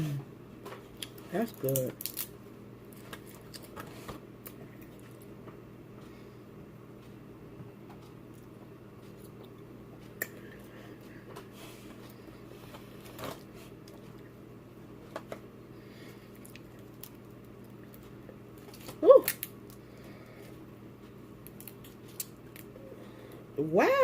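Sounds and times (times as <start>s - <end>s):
low steady hum: 0.0s - 24.0s
soft eating sounds: 0.8s - 6.4s, 7.9s - 23.6s
crab shells cracking: 1.0s - 2.4s, 18.6s - 19.8s, 21.4s - 22.8s.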